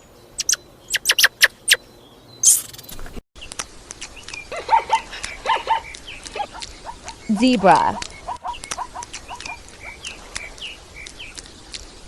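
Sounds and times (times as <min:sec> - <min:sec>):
faint background noise: 0:00.0 - 0:12.0
squirrel chirping: 0:00.3 - 0:01.8, 0:02.4 - 0:02.9, 0:04.4 - 0:11.4.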